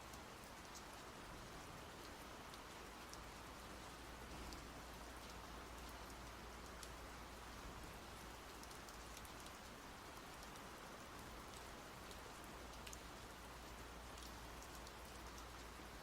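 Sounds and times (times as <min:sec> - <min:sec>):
raindrops ticking on a surface: 0:00.0 - 0:16.0
steady rainfall: 0:00.0 - 0:16.0.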